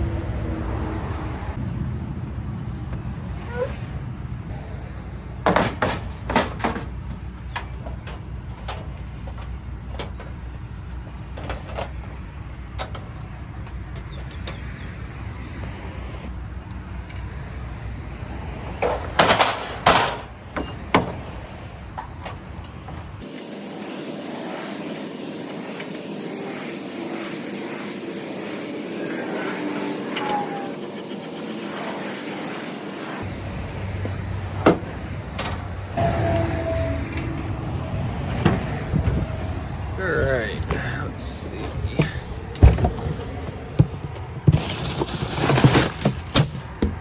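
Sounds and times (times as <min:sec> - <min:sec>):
steady low rumble: 0:00.0 - 0:05.4, 0:21.5 - 0:44.4.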